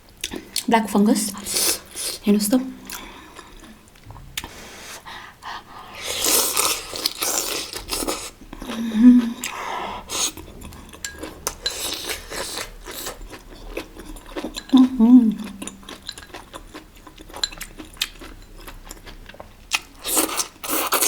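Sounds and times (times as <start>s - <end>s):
chewing and crunching food: 5.9s - 21.0s.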